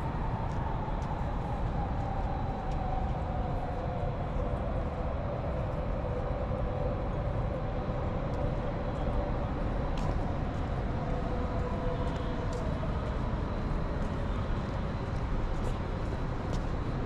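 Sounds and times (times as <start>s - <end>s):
city street noise: 0.0s - 17.0s.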